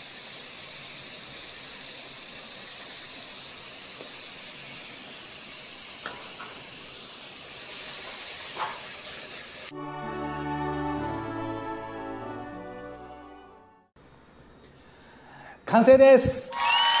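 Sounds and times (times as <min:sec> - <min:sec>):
stir-fry sizzling in frying pan: 0:00.0 - 0:09.7.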